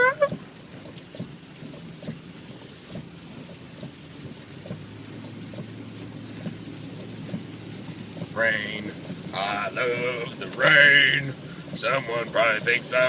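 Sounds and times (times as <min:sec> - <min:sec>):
drop ticks: 0:00.0 - 0:13.0
rain falling on a car: 0:00.0 - 0:13.0.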